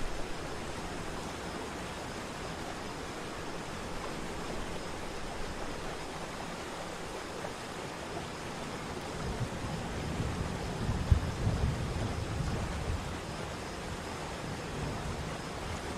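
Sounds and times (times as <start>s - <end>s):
wind buffeting microphone: 9.1s - 15.9s.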